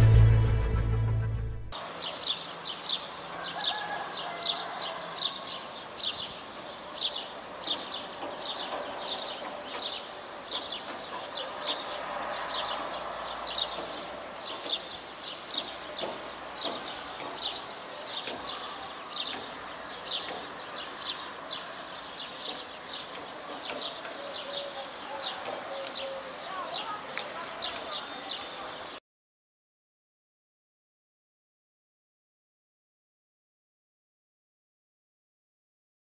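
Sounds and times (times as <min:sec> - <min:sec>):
bird chirping: 0:01.8 - 0:29.0.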